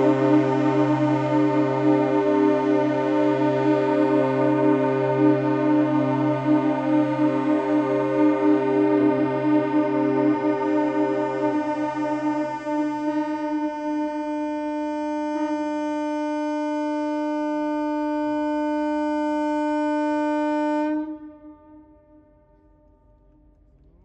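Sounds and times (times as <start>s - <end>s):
ship's whistle blast: 10.5s - 22.6s.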